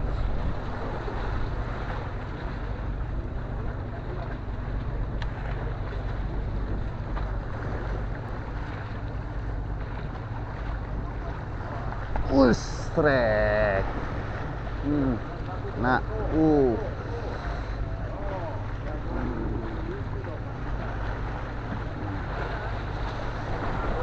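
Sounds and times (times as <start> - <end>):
wind buffeting microphone: 0.0 - 11.5.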